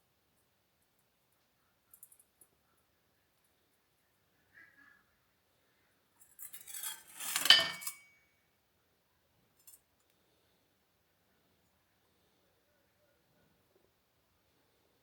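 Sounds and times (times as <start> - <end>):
metal scraping and clinking: 6.2 - 8.2.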